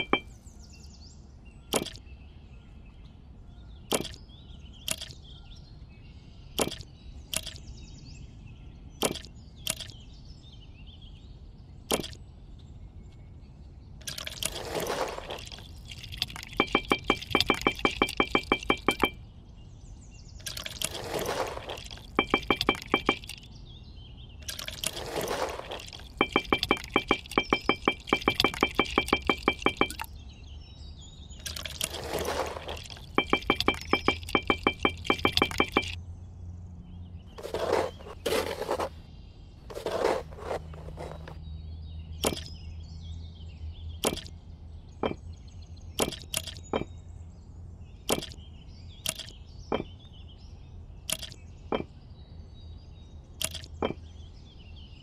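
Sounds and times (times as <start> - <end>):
small bricks clicking down: 3.9 - 4.2, 14.0 - 19.2, 20.4 - 23.5, 24.4 - 30.1, 31.4 - 36.0, 37.4 - 39.0, 39.7 - 41.4, 44.0 - 44.3, 46.0 - 46.9, 48.1 - 48.4, 49.1 - 49.3
trowel spreading wet mortar: 24.6 - 27.8, 31.6 - 33.1, 37.4 - 39.0, 39.7 - 41.4.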